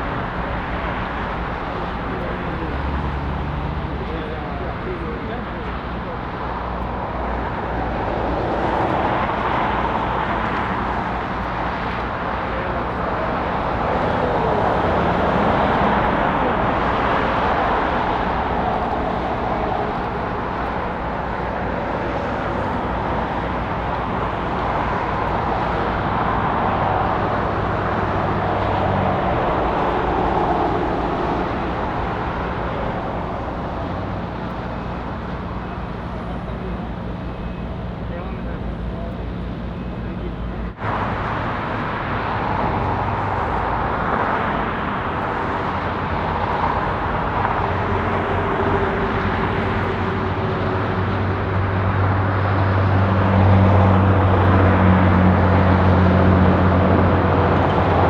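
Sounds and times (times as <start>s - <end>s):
jet engines rushing: 0.0s - 58.0s.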